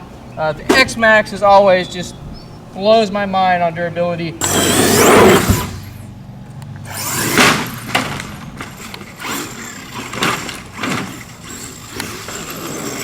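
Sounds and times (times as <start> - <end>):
electric motor whining: 4.4 - 6.2, 6.8 - 13.0.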